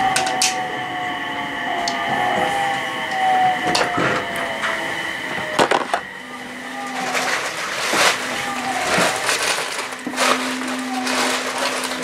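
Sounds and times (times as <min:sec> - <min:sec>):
train cabin rushing rumble: 0:01.5 - 0:12.0.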